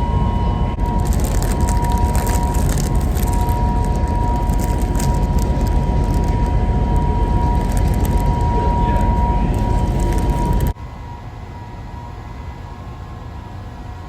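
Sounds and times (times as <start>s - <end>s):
constant hum: 0.0s - 14.0s
ferry engine rumble: 0.0s - 14.0s
light crackles: 0.8s - 10.8s.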